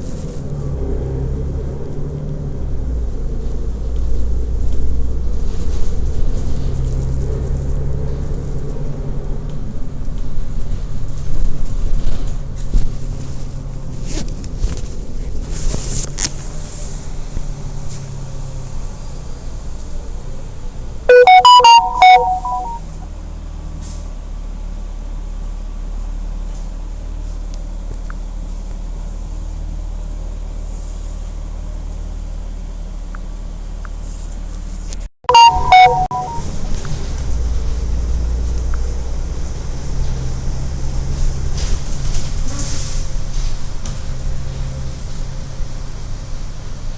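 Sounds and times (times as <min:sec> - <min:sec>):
electronic chime: 0:21.1 - 0:23.0, 0:35.3 - 0:36.4.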